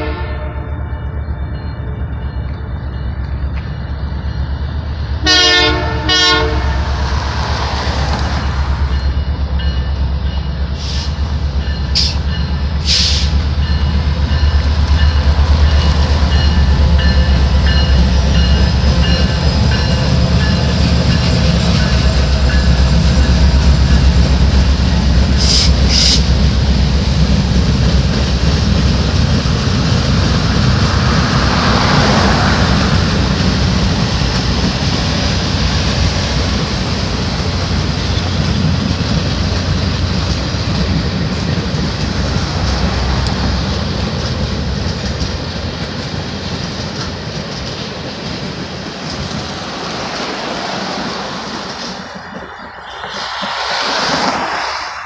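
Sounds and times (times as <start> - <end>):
train horn blasts: 0.0 - 1.6, 5.2 - 7.1, 25.4 - 26.3
locomotive rumble: 0.0 - 55.0
train wheels clacking: 6.9 - 54.6.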